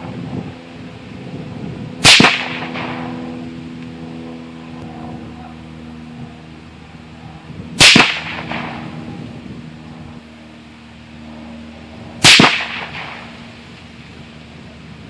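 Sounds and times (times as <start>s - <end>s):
rifle shots: 2.0s - 3.1s, 7.8s - 8.9s, 12.2s - 13.3s.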